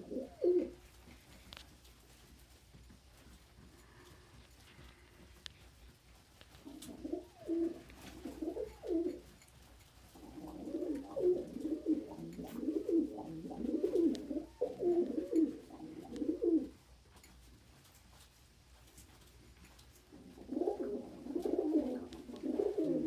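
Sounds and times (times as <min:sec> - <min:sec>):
pigeons cooing: 0:00.0 - 0:00.9, 0:06.6 - 0:09.3, 0:10.1 - 0:16.8, 0:20.1 - 0:23.0.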